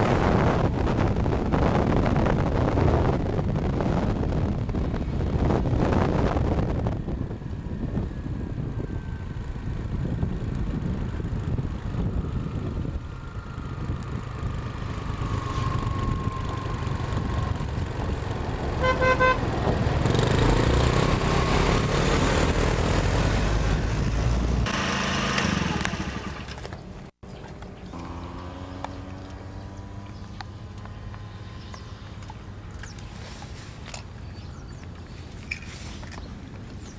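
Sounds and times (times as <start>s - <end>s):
train horn toot: 18.8s - 19.4s.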